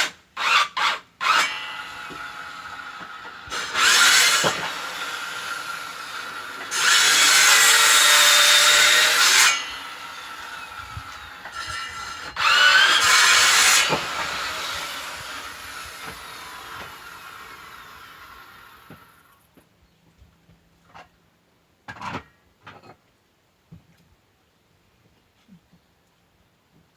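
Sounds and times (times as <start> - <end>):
power saw cutting firewood: 0.0 - 19.4
saw motor whining: 0.4 - 19.1.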